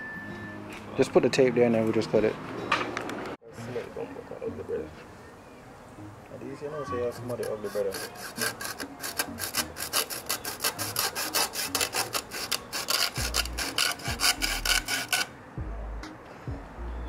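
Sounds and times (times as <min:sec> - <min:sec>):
saw cutting rubber hose: 0:07.0 - 0:15.3.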